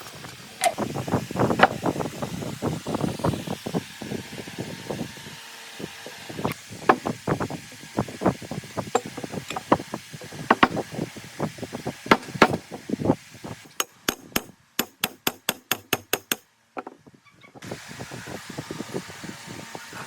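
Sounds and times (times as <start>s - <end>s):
hand tool knocks and clinks: 9.0s - 9.7s.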